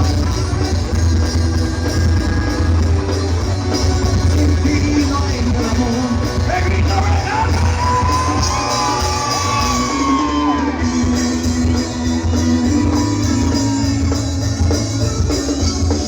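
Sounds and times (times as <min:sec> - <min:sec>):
rock band playing: 0:00.0 - 0:16.0
person singing: 0:03.8 - 0:11.8.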